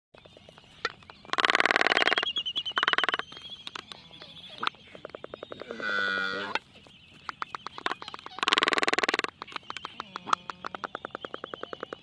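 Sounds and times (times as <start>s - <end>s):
bird rattling call: 0.2s - 3.9s, 7.2s - 12.0s.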